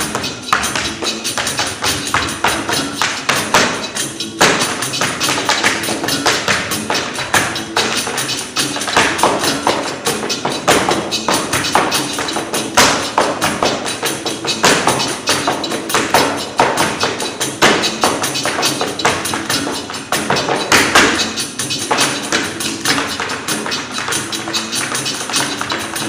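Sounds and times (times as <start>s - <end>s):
tap-dance footwork on stage: 0.0s - 26.0s.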